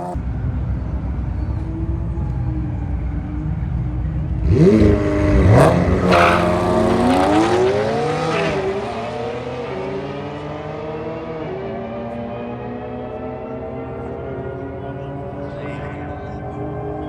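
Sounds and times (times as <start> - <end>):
car engine accelerating hard: 1.1 - 17.0.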